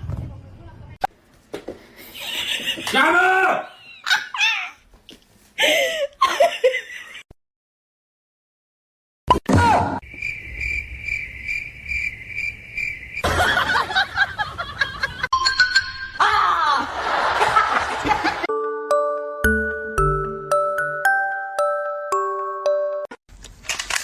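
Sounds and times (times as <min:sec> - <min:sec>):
people laughing: 0:02.1 - 0:04.5, 0:13.2 - 0:15.3, 0:16.2 - 0:18.5
mallet percussion music jingle: 0:15.3 - 0:16.2, 0:18.5 - 0:23.1.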